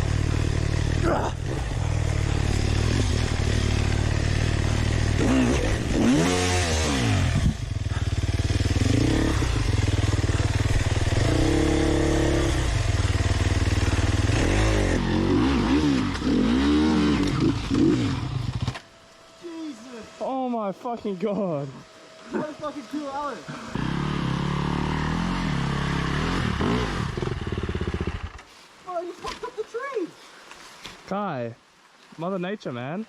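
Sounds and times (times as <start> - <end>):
dirt bike engine revving hard: 0.0 - 18.8, 22.3 - 28.4.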